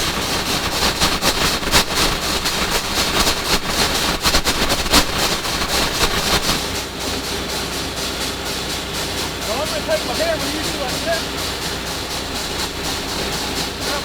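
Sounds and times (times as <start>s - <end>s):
drill rig machine noise: 0.0s - 14.0s
rapid irregular clatter: 0.0s - 14.0s.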